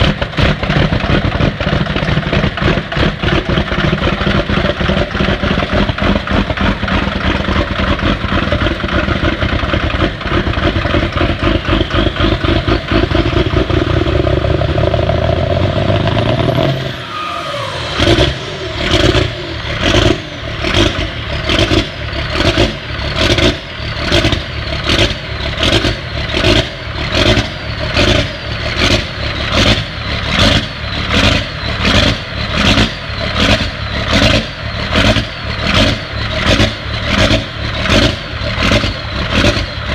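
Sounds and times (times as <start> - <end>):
diesel engine running: 0.0 - 39.9
turbo whistle: 11.4 - 25.0.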